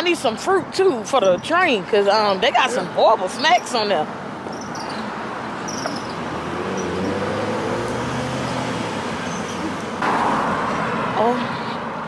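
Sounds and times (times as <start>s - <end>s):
street traffic noise: 0.0s - 12.0s
vehicle engine passing by: 6.0s - 11.3s.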